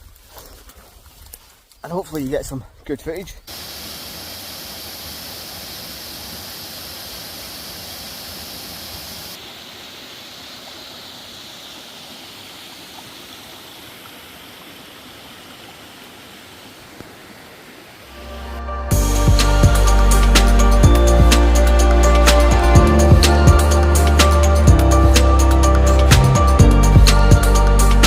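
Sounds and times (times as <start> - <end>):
flowing water rushing: 3.5 - 18.6.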